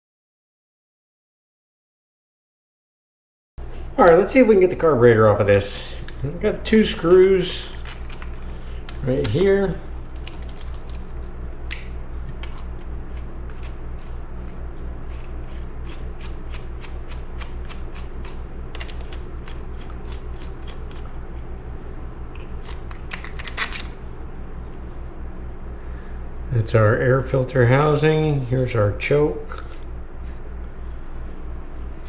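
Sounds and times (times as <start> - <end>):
low steady hum: 3.6 - 32.0.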